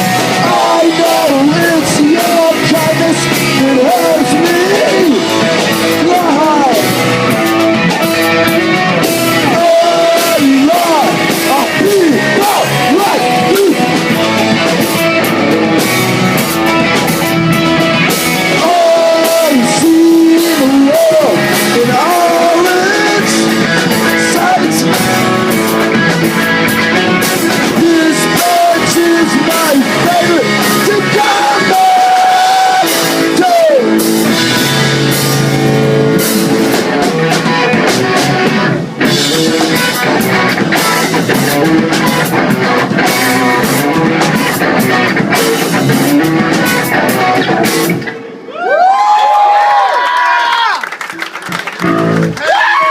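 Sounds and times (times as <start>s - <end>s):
person singing lead vocal: 0.0s - 7.3s, 9.3s - 14.4s, 18.4s - 34.8s
drums: 0.0s - 52.9s
electric guitars: 0.0s - 52.9s.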